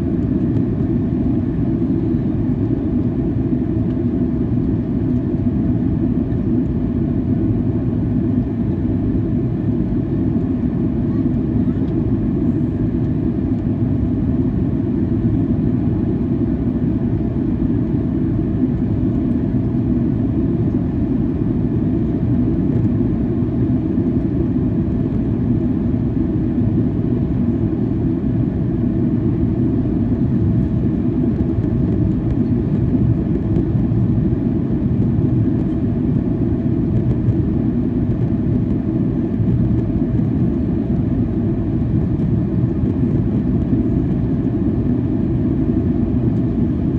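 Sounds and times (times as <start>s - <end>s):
airflow over fuselage: 0.0s - 46.9s
jet engine rumble: 0.0s - 46.9s.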